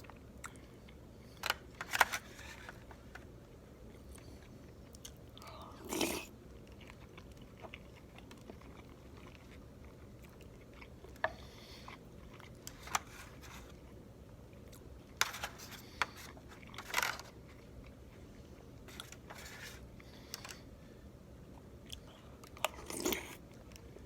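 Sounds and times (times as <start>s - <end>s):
person chewing food: 3.9s - 13.0s, 21.5s - 24.0s.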